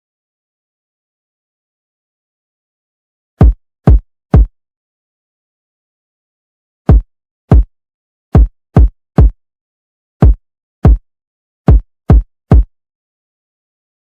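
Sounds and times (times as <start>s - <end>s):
electronic kick drum hits: 3.4s - 4.5s, 6.9s - 7.7s, 8.4s - 9.4s, 10.2s - 11.0s, 11.7s - 12.7s.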